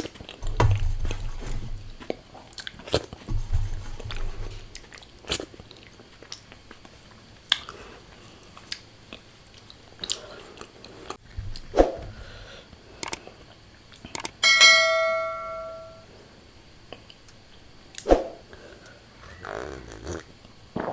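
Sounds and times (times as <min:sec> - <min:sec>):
mouth chewing and crunching: 0:04.7 - 0:11.2
bright bell-like chime: 0:14.4 - 0:16.0.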